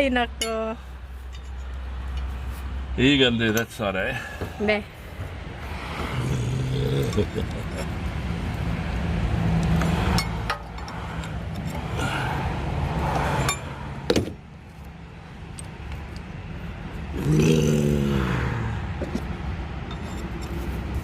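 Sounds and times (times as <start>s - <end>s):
metal tools clinking and knocking: 1.3s - 2.3s, 10.1s - 11.8s, 19.0s - 20.8s.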